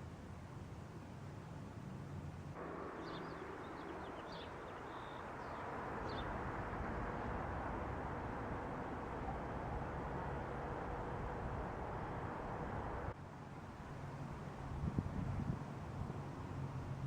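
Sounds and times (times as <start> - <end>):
steady rushing noise: 2.6 - 13.2.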